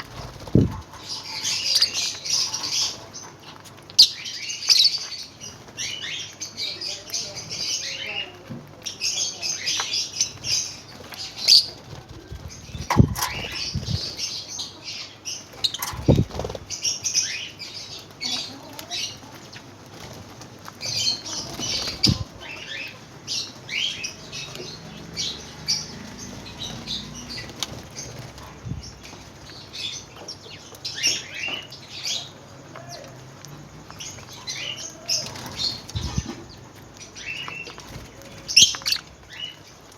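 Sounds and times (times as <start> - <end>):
dull thumps of birds moving: 0.0 - 1.5, 10.3 - 14.3, 15.6 - 16.8, 18.0 - 23.7
lovebirds chattering: 0.0 - 39.9.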